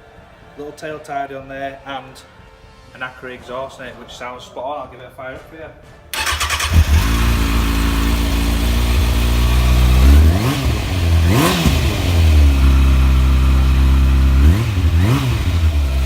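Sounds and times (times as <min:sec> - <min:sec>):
motorcycle engine idling: 0:06.2 - 0:16.0.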